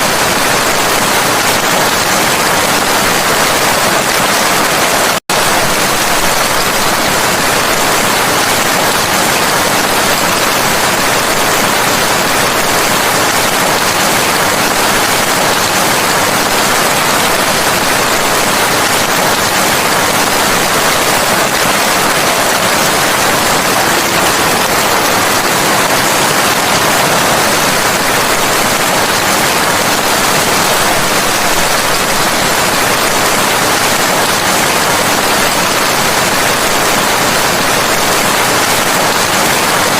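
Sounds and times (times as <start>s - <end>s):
heavy rain hiss: 0.0s - 39.9s.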